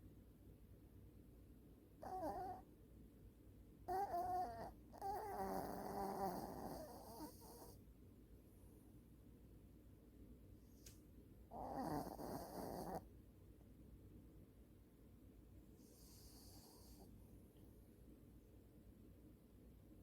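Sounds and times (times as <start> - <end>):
dog snoring: 2.0 - 2.6, 3.9 - 7.8, 11.5 - 13.1, 15.8 - 17.1.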